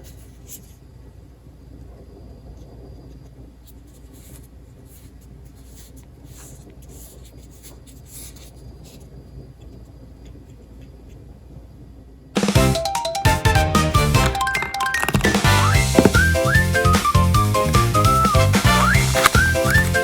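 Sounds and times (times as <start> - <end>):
marbles rolling on wooden track: 14.1 - 16.4.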